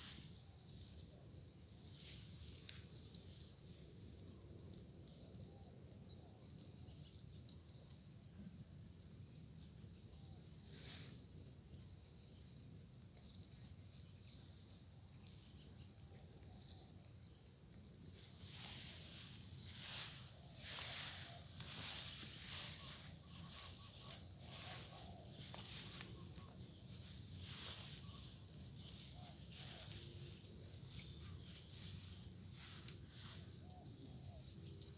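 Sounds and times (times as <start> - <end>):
soft rustle: 9.6 - 34.9
high insect drone: 18.3 - 34.9.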